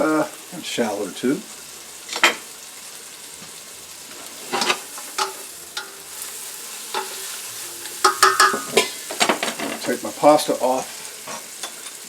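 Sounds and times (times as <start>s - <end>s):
mushrooms sizzling in a pan: 0.0s - 12.0s
utensil knocking against pan: 8.0s - 9.8s.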